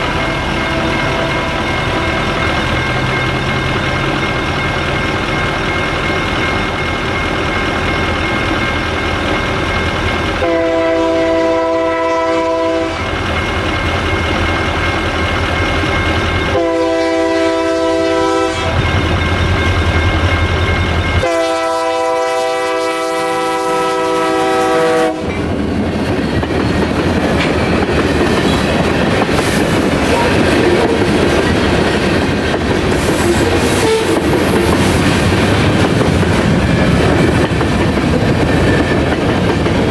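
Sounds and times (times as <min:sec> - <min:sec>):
train wheels clattering over rails: 0:00.0 - 0:21.5, 0:24.0 - 0:39.9
crossing bell ringing: 0:00.0 - 0:39.9
locomotive air horn blasts: 0:10.4 - 0:13.0, 0:16.6 - 0:18.8, 0:21.2 - 0:25.4, 0:33.2 - 0:34.2.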